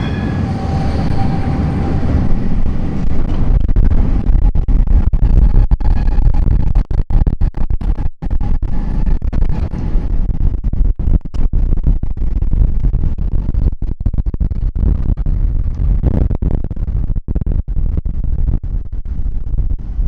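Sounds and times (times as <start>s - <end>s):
wind buffeting microphone: 0.0s - 6.9s.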